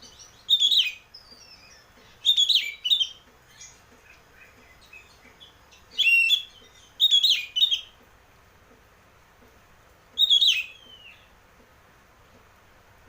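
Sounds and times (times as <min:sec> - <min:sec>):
bird singing whistled phrases: 0:00.3 - 0:03.2, 0:06.0 - 0:07.9, 0:10.2 - 0:11.3.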